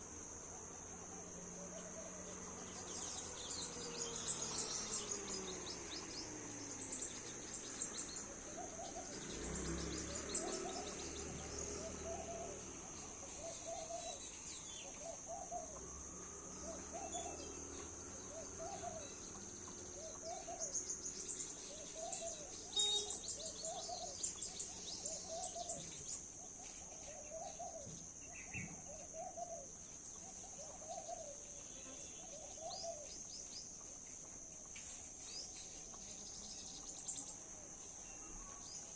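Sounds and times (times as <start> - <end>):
insects droning: 0.0 - 38.9
bird hooting: 11.7 - 14.2.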